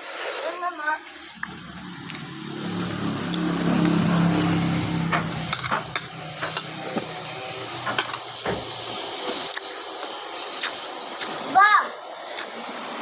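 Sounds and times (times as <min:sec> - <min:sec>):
vehicle engine running: 0:01.0 - 0:09.5.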